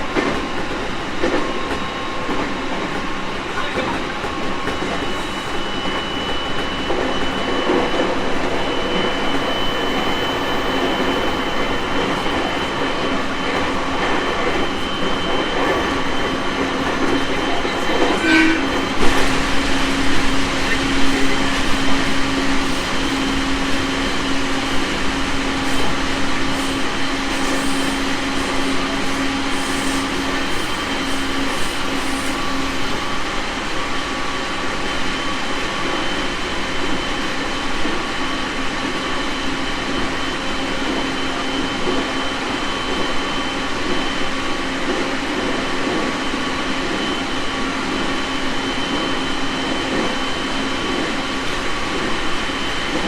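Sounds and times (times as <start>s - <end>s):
wheels rumbling on rail: 0.0s - 53.0s
thin high whine: 1.2s - 35.0s.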